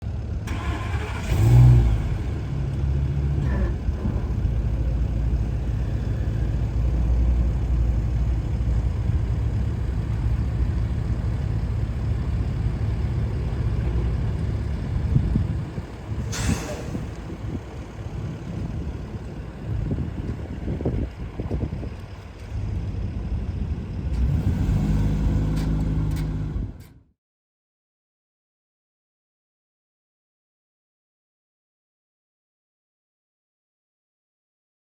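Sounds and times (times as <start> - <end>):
truck engine revving and idling: 0.0 - 27.0.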